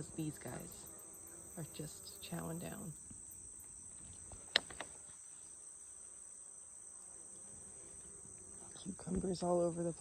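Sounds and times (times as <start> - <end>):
chorus of crickets and insects: 0.0 - 10.0.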